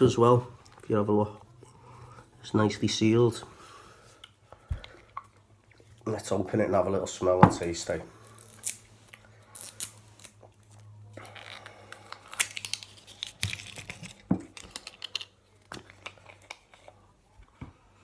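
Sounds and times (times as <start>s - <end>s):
plastic seal crinkling and tearing: 9.5s - 17.0s.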